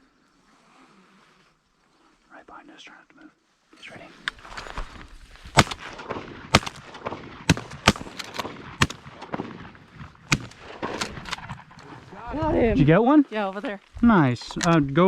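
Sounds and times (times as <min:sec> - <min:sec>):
shotgun shots: 0:05.5 - 0:11.7.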